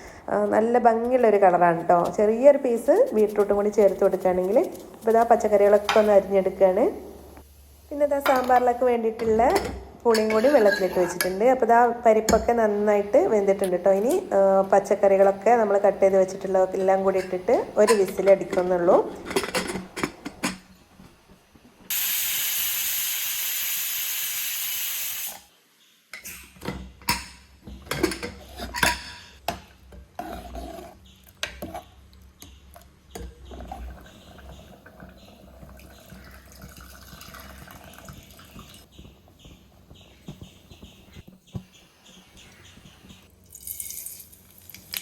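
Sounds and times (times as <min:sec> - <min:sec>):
pots and utensils clinking: 0:08.2 - 0:11.4, 0:16.2 - 0:20.8, 0:26.2 - 0:30.8
pressure cooker steam hiss: 0:21.9 - 0:25.5.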